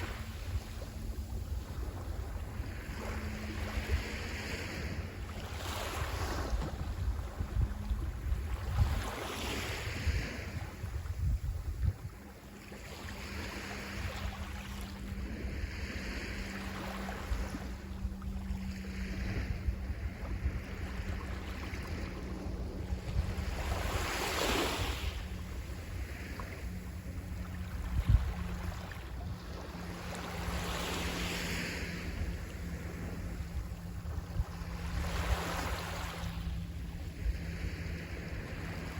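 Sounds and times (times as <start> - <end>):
sea waves breaking on shore: 0.0 - 38.9
steady low hum: 0.0 - 38.9
wind rumble on microphone: 0.0 - 38.9.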